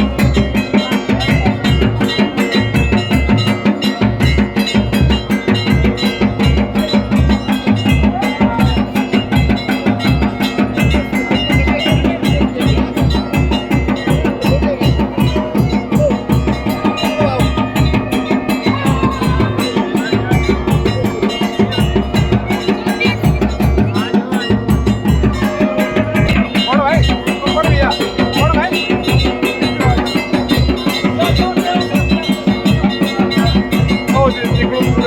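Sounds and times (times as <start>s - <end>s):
fast drumming music: 0.0s - 35.0s
steady held tone: 10.4s - 35.0s.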